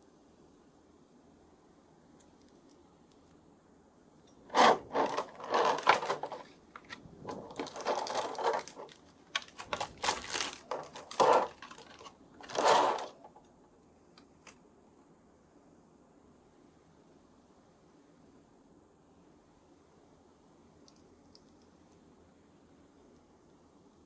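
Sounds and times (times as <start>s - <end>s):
packaging rustling and scraping: 4.5s - 13.5s.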